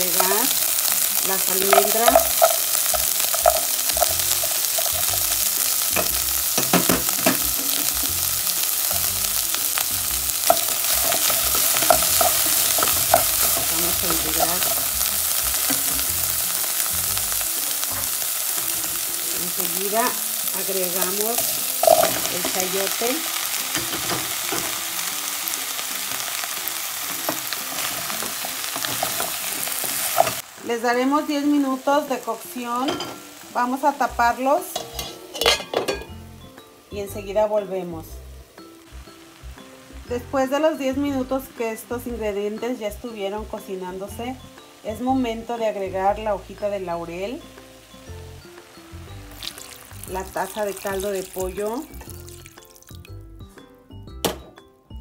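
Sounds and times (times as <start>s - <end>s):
almonds clicking into a pan: 0.0s - 7.5s
vegetables sizzling in a frying pan: 0.0s - 53.6s
wooden spatula stirring: 1.4s - 5.4s.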